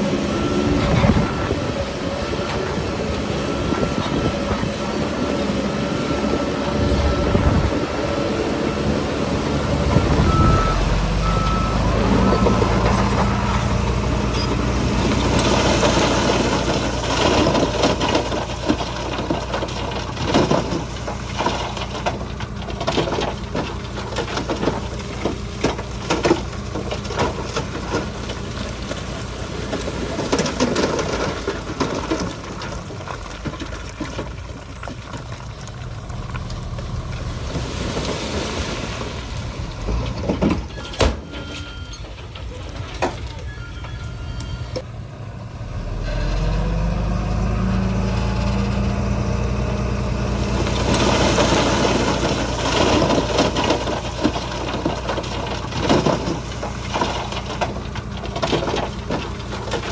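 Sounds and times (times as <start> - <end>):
bulldozer diesel engine running: 0.0 - 59.9
reversing alarm beeping: 10.0 - 14.7, 40.7 - 42.1, 43.3 - 44.8
metal clanks and knocks: 50.6 - 59.9.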